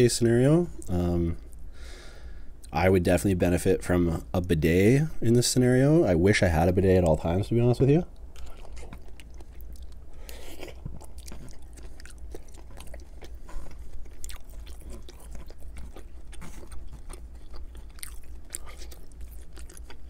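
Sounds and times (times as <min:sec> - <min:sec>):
steady low hum: 0:00.0 - 0:20.0
person chewing noodles: 0:08.2 - 0:20.0.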